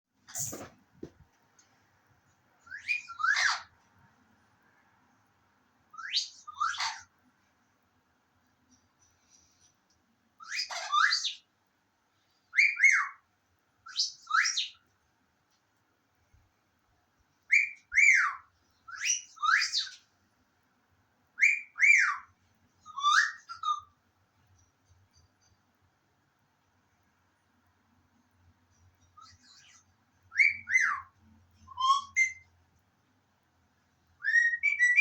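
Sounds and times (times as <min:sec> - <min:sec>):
high bird-like whistling: 0:02.6 - 0:03.8, 0:05.9 - 0:07.1, 0:10.4 - 0:11.5, 0:12.5 - 0:13.2, 0:13.9 - 0:14.8, 0:17.5 - 0:20.0, 0:21.4 - 0:23.9, 0:29.1 - 0:32.5, 0:34.2 - 0:35.0.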